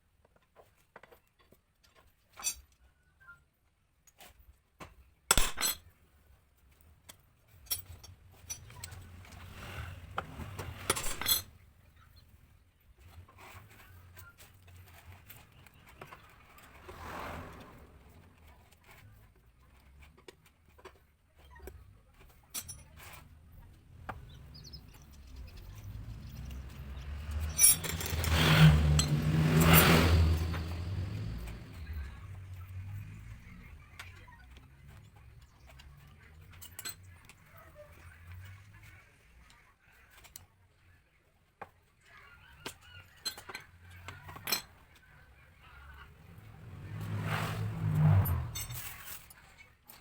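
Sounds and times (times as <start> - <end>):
metal tools clicking and knocking: 7.1 - 9.4, 22.5 - 23.2, 26.4 - 30.8
motor vehicle passing: 8.6 - 11.5, 14.7 - 19.0, 23.0 - 36.3, 45.0 - 49.5.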